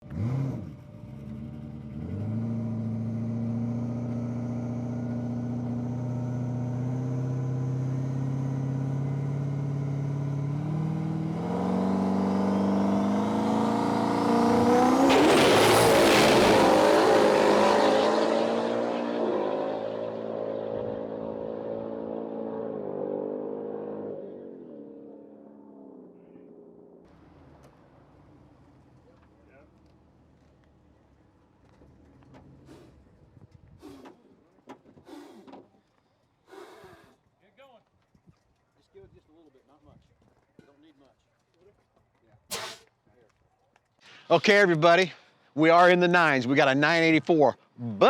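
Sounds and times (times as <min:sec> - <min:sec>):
loud rushing surge: 0:14.4 - 0:18.4.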